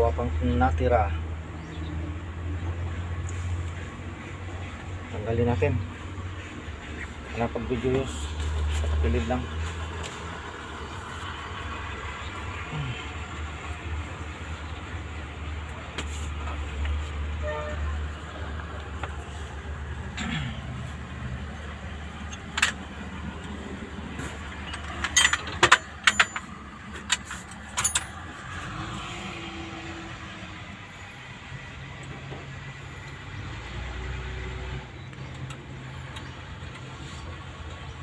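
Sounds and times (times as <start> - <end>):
low engine hum: 0.0 - 38.0
metal tools clinking: 24.6 - 28.7.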